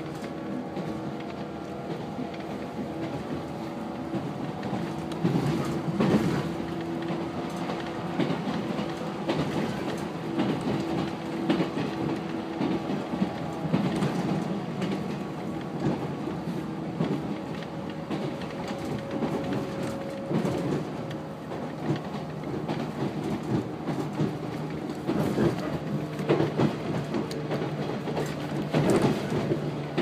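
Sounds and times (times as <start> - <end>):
electric train interior hum: 0.0 - 30.0
wheels clacking over rail joints: 0.0 - 30.0.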